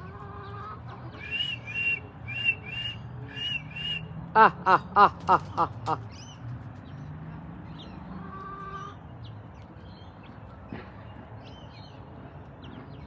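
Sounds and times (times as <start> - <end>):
chicks peeping: 0.0 - 4.0, 7.7 - 10.4
hen call: 1.2 - 6.0.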